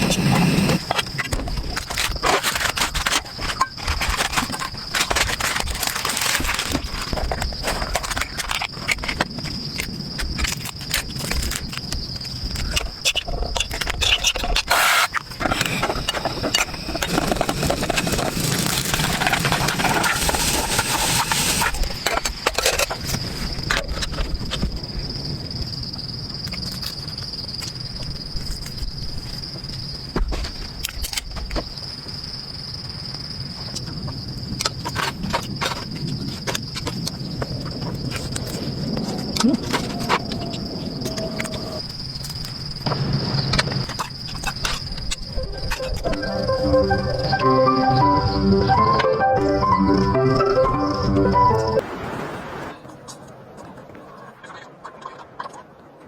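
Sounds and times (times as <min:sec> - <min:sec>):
hiss of noise: 0:00.0 - 0:01.0, 0:14.7 - 0:21.9
insects chirring: 0:00.0 - 0:51.8.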